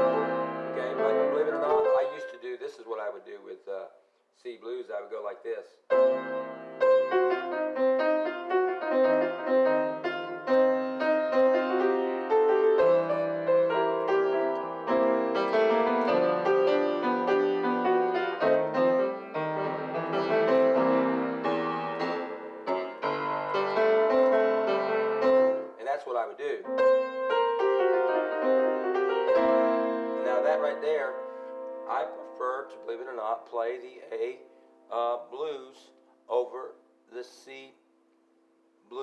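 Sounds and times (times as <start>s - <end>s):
blues piano playing: 0.0s - 2.8s, 5.9s - 35.0s.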